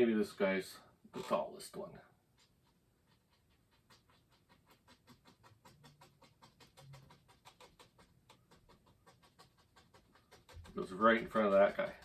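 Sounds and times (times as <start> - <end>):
brush tapping on canvas: 3.1 - 12.0.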